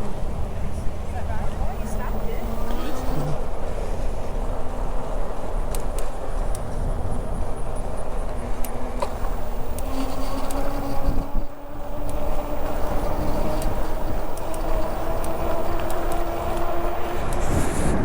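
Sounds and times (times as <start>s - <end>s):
wind and bicycle tyres rumble: 0.1s - 18.0s
faint rising hum: 1.6s - 3.5s, 8.8s - 18.0s
clicks: 1.8s - 3.4s, 8.6s - 17.5s.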